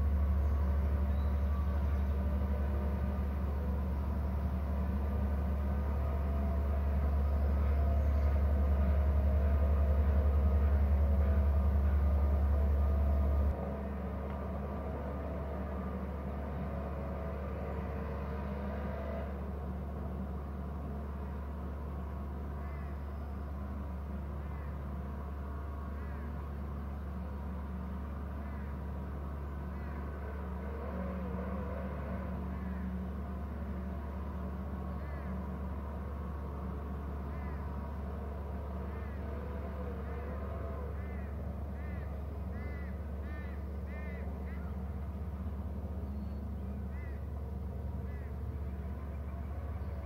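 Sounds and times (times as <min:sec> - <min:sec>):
steady low rumble: 0:00.0 - 0:16.7.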